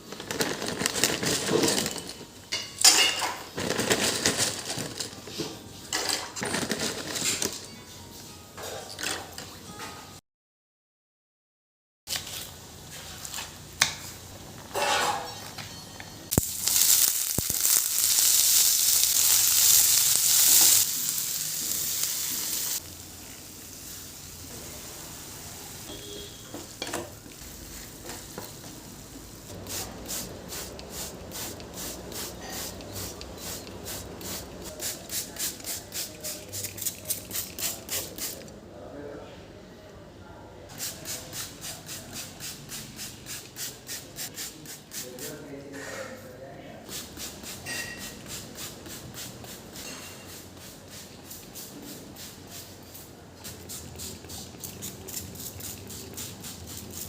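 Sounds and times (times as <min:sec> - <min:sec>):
rhythmic strokes in pan: 0:16.3 - 0:25.4, 0:46.9 - 0:52.8
food sizzling in oil: 0:16.3 - 0:38.3, 0:46.9 - 0:52.5.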